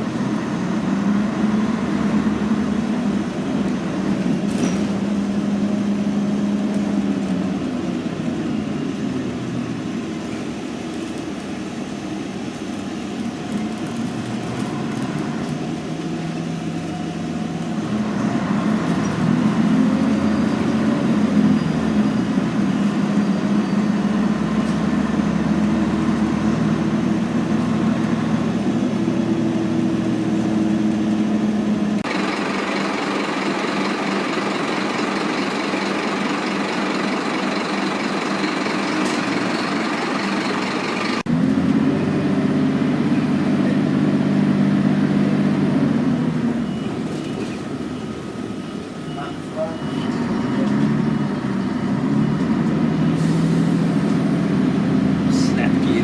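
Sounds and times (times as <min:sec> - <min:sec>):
diesel bus engine running: 0:00.0 - 0:56.0.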